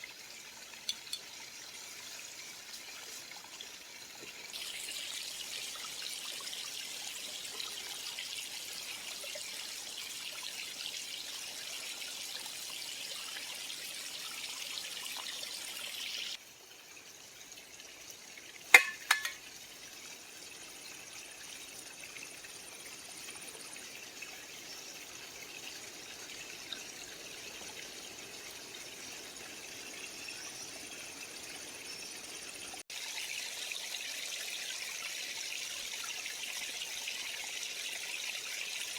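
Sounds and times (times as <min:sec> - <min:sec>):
creek water trickling: 0:00.0 - 0:38.9.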